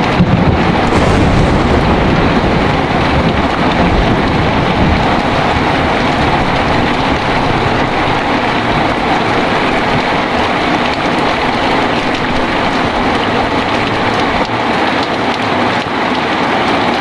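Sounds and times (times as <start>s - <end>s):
strong wind: 0.0s - 15.3s
heavy rain: 0.0s - 17.0s.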